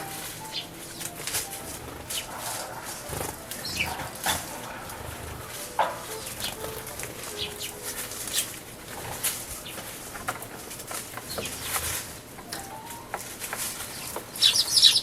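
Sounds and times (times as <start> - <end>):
birds chirping: 0.0 - 15.0
wings fluttering: 0.0 - 15.0.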